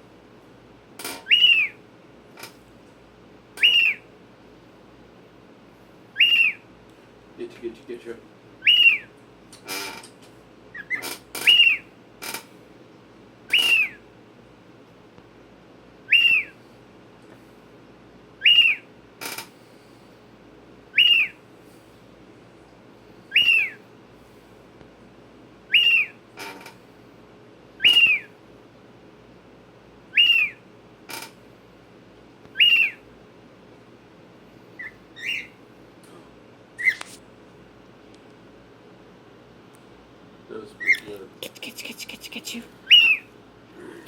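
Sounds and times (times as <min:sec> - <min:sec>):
cockatiel whistled call: 0:01.2 - 0:01.8, 0:03.6 - 0:04.1, 0:06.2 - 0:06.6, 0:08.6 - 0:09.1, 0:10.7 - 0:11.9, 0:13.5 - 0:14.0, 0:16.1 - 0:16.6, 0:18.4 - 0:18.9, 0:20.9 - 0:21.4, 0:23.3 - 0:23.8, 0:25.7 - 0:26.2, 0:27.8 - 0:28.3, 0:30.1 - 0:30.6, 0:32.5 - 0:33.0, 0:34.8 - 0:35.6, 0:36.8 - 0:37.1, 0:42.9 - 0:43.3.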